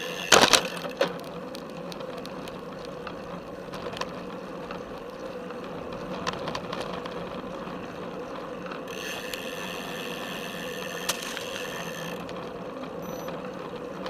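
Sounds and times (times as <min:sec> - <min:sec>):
freewheel ratcheting buzz: 0:00.0 - 0:02.5, 0:08.8 - 0:13.6
bicycle frame clicks and rattles: 0:00.0 - 0:14.0
bicycle tyres rolling on pavement: 0:00.0 - 0:14.0.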